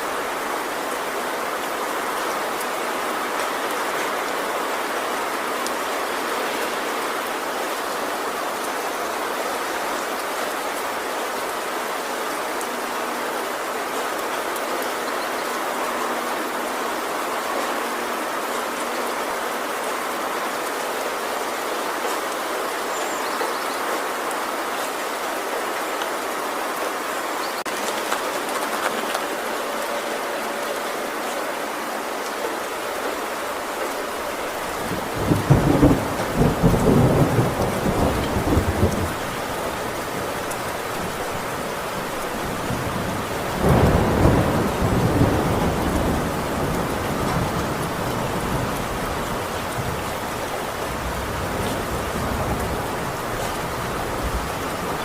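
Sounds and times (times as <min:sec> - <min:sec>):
heavy rain on a tin roof: 0:00.0 - 0:55.0
thunder rumbling: 0:33.6 - 0:55.0.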